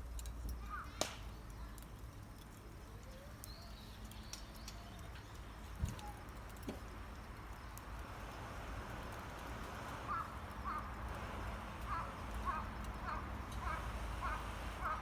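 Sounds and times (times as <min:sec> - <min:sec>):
low outdoor background noise: 0:00.0 - 0:15.0
crow cawing: 0:10.1 - 0:11.0, 0:11.8 - 0:15.0.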